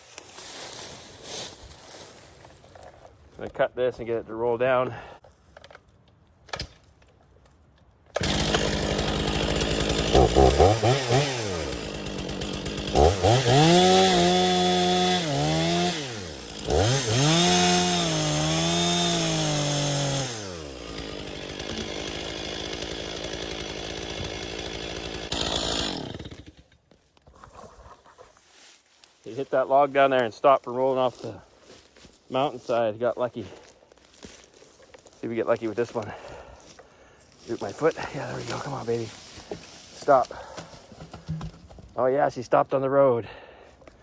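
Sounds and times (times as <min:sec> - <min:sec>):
chainsaw cutting log: 0:08.1 - 0:27.0, 0:33.5 - 0:41.9.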